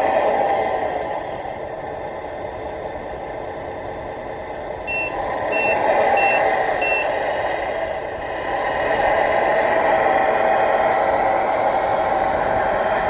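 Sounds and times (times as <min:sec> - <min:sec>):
steady rushing noise: 0:00.0 - 0:13.0
reversing beeper: 0:04.9 - 0:07.2.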